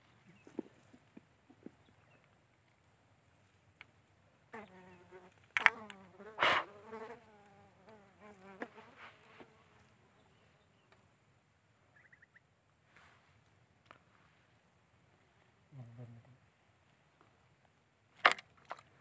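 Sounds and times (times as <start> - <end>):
insect bumping microphone: 0.0 - 12.4, 13.8 - 19.0
flying insect buzzing: 4.5 - 10.4.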